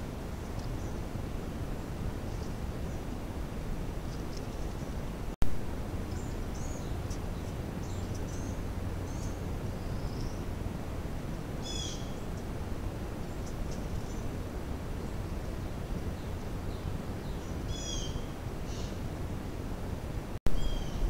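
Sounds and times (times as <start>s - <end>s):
low background rumble: 0.0s - 21.0s
small birds chirping: 0.4s - 1.1s, 2.2s - 3.1s, 4.0s - 5.1s, 6.0s - 10.6s, 11.3s - 19.1s, 20.5s - 21.0s.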